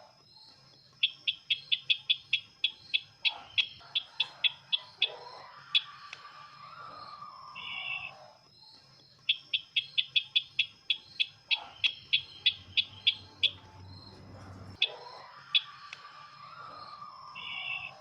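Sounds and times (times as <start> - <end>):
bird warbling and chipping: 9.3 - 18.0.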